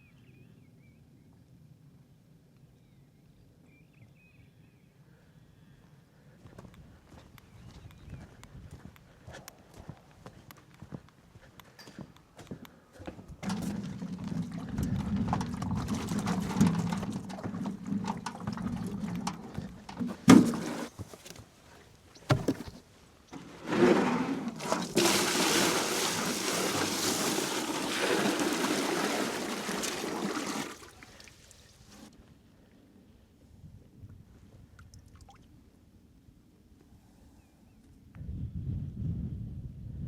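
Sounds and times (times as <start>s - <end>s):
water running into a container: 13.4s - 20.9s, 23.4s - 32.1s.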